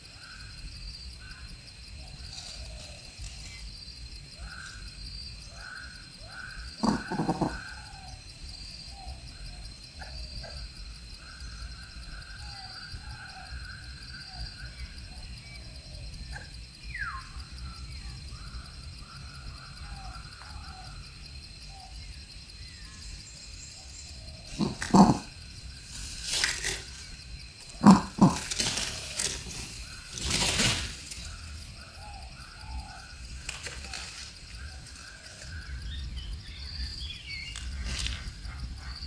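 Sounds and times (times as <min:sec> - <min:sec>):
loud animal call: 0:06.8 - 0:07.8, 0:24.5 - 0:25.4, 0:27.7 - 0:29.9
short chirps and croaks: 0:06.8 - 0:07.8, 0:24.5 - 0:30.2.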